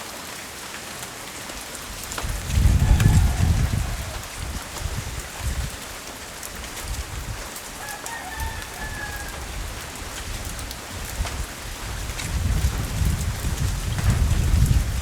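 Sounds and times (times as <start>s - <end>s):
steady rain falling: 0.0s - 15.0s
faint rooster crowing: 2.5s - 4.6s, 7.8s - 9.8s.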